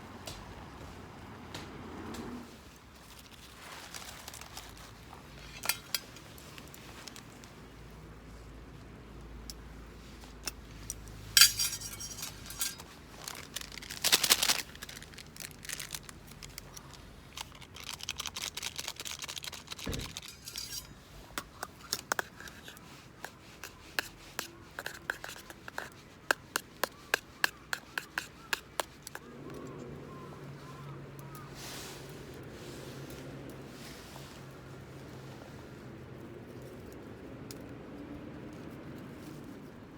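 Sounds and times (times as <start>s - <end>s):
cookware scraping: 5.4s - 6.4s, 11.3s - 12.9s, 19.9s - 26.0s
cookware clinking and rustling: 5.4s - 6.7s, 10.5s - 13.0s, 19.8s - 22.6s.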